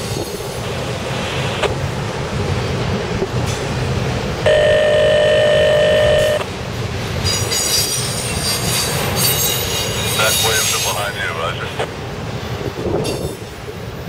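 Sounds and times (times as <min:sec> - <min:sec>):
train wheels rumbling on rail: 0:00.0 - 0:14.0
train horn blast: 0:04.4 - 0:06.5
wheels squealing: 0:07.2 - 0:11.0.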